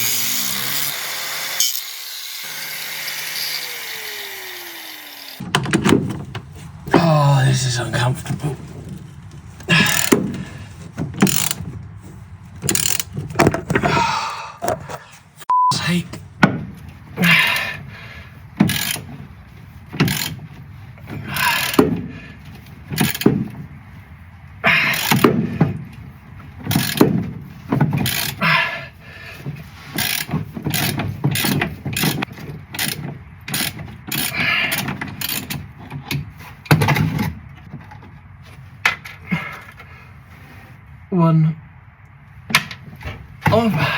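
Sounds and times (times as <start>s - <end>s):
hand tool metal clicks and rattling: 8.8s - 11.8s, 12.5s - 13.9s.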